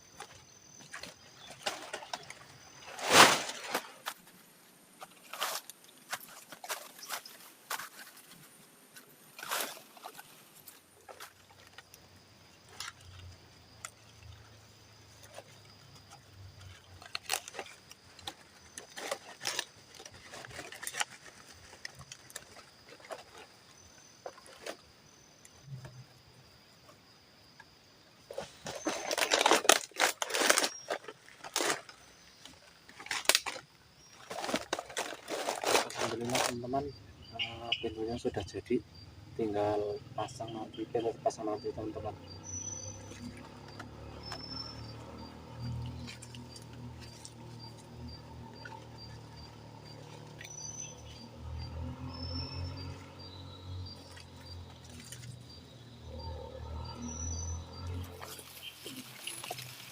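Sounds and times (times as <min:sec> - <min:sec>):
hands rustling shelter materials: 0:00.1 - 0:12.0, 0:15.1 - 0:24.9, 0:28.3 - 0:36.7, 0:54.0 - 0:55.7, 0:57.6 - 0:59.9.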